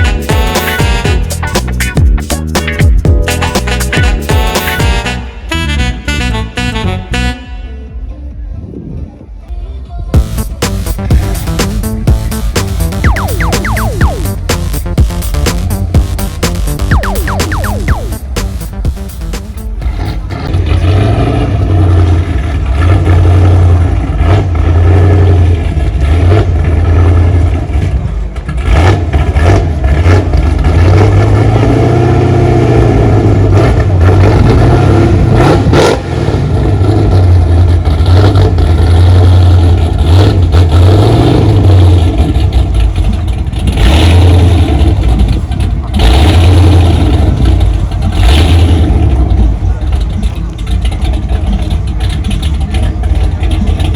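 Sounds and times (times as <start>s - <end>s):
car engines revving: 17.8s - 53.9s.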